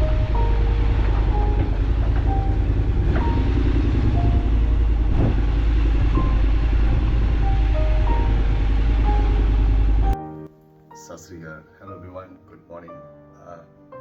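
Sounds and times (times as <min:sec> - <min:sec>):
motorcycle engine rumble: 0:00.0 - 0:10.2
wind: 0:00.0 - 0:10.2.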